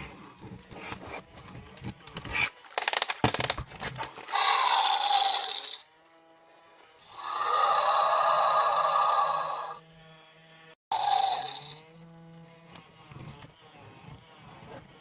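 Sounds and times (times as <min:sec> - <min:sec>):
toy synthetic growl: 0:04.3 - 0:05.9, 0:07.0 - 0:09.8, 0:10.9 - 0:11.8.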